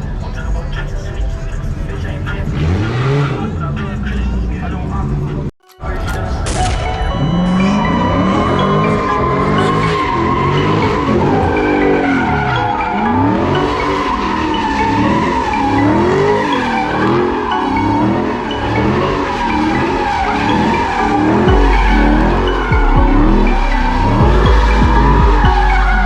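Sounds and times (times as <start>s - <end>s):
car engine revving: 0.0s - 5.5s, 6.1s - 26.0s
tyres squealing: 5.7s - 26.0s
heavy low rumble: 21.5s - 26.0s.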